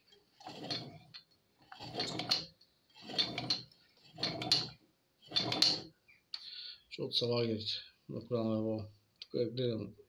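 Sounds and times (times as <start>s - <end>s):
moped engine grinding: 0.3s - 5.9s.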